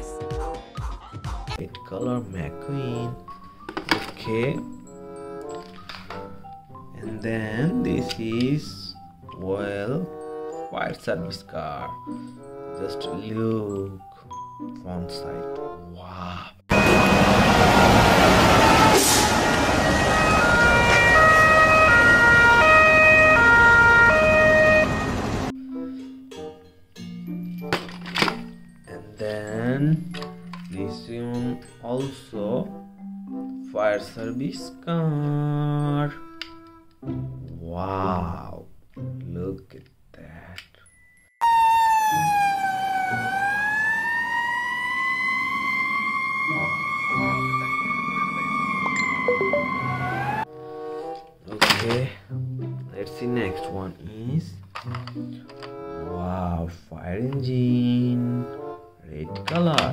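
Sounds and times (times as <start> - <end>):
toy siren two-tone hi-lo: 41.4 - 50.5.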